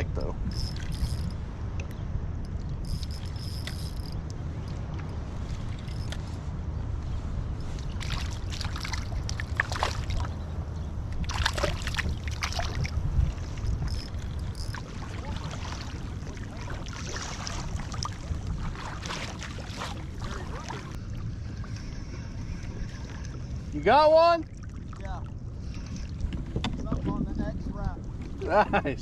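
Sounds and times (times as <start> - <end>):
steady low rumble: 0.0 - 23.8, 24.4 - 29.0
water splashing against kayak hull: 7.8 - 10.4, 11.1 - 23.6.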